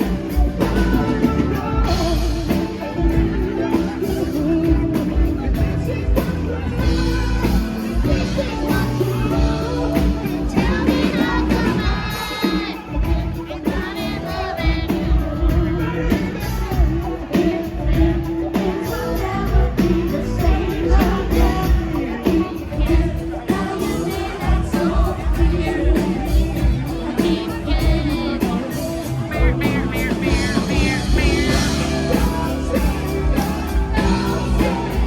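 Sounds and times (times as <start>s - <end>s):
live rock band playing: 0.0s - 35.0s
person singing: 0.0s - 35.0s
steady bass beat: 27.6s - 35.0s.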